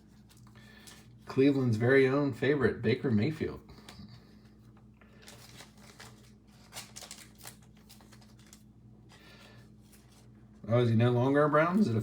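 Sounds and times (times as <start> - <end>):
trading cards rustling and flicking: 0.0 - 1.8, 3.8 - 10.5
low steady hum: 0.0 - 12.0.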